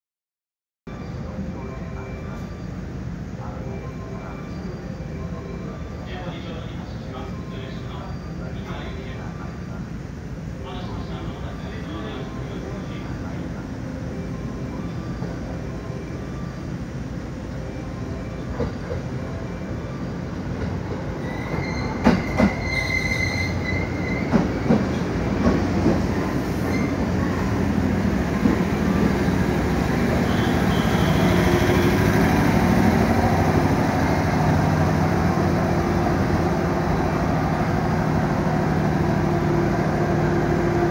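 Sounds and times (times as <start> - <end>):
train hum: 0.9 - 40.9
wheels squealing: 21.2 - 24.5, 30.1 - 32.5
electric train braking: 21.2 - 40.9.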